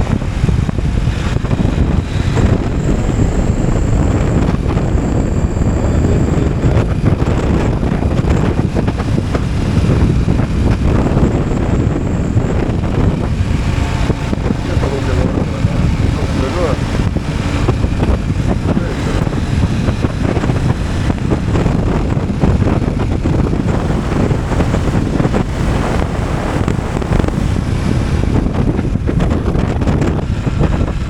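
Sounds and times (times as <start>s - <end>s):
motorcycle engine running: 0.0s - 31.0s
wind rushing over microphone: 0.0s - 31.0s
faint high whine: 1.3s - 21.0s.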